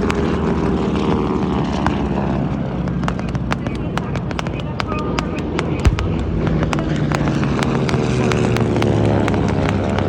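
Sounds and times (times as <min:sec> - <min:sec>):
engine humming: 0:00.0 - 0:10.0
thump: 0:05.9 - 0:08.7.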